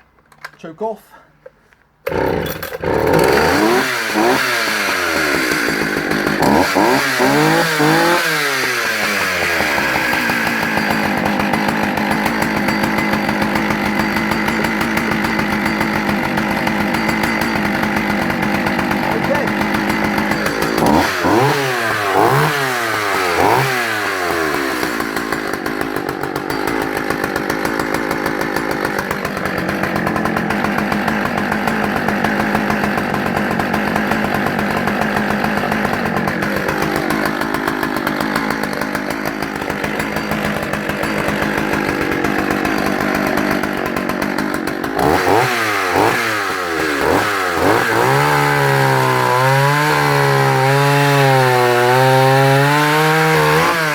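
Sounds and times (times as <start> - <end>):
chainsaw revving and cutting log: 2.0 - 53.9.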